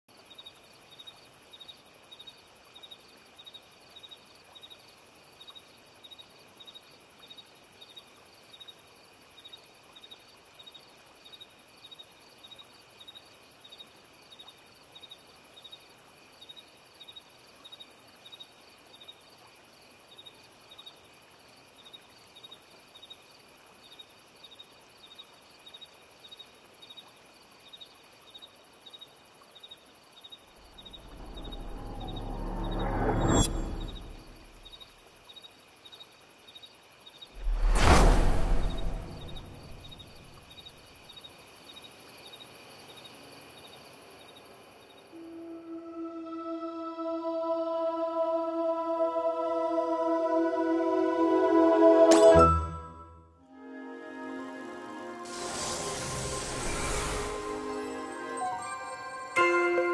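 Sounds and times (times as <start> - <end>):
insect chirping: 0.1 - 47.9, 53.6 - 59.8
faint hiss: 34.1 - 45.5, 54.1 - 58.7.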